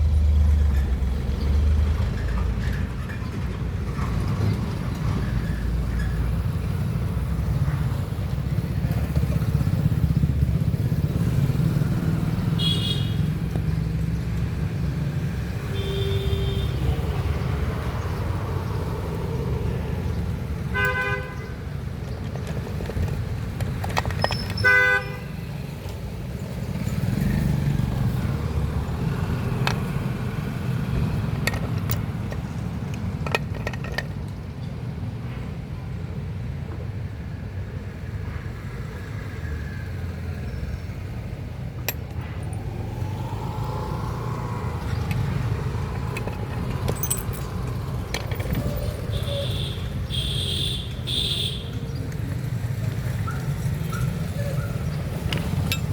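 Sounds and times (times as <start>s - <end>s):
road traffic rumble: 0.0s - 55.9s
vehicle horns: 12.5s - 13.4s, 15.6s - 17.1s, 20.7s - 21.6s, 24.6s - 25.4s, 49.0s - 51.9s.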